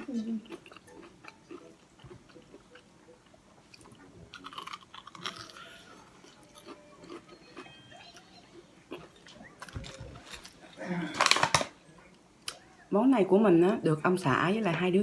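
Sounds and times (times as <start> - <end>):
crunchy chewing: 0.0 - 8.3.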